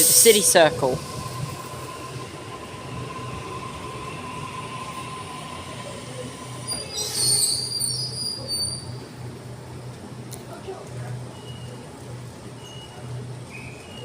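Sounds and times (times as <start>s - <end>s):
train low hum: 0.0s - 14.0s
train steady whine: 0.0s - 14.0s
wheel and brake squeals: 6.6s - 9.0s, 11.3s - 11.8s, 12.6s - 14.0s.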